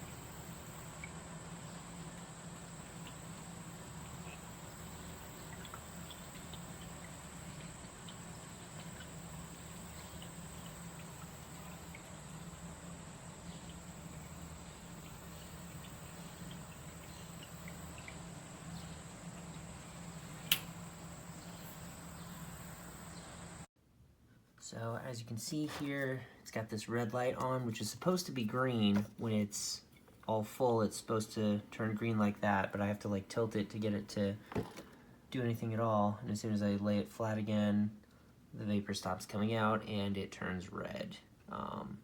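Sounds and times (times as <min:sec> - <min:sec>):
faint low hum: 0:00.0 - 0:23.7
sharp click: 0:20.4 - 0:20.8.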